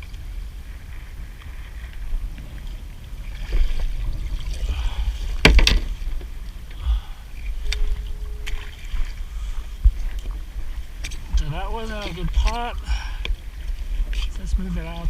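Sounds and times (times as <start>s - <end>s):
low rumble and water noise: 0.0s - 15.0s
sharp knocks on kayak: 5.4s - 6.0s.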